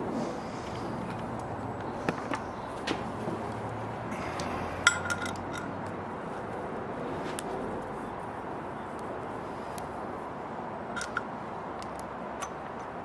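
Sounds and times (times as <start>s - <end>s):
steady background noise: 0.0s - 13.0s
metal tools clinking: 4.8s - 5.8s, 11.0s - 11.3s.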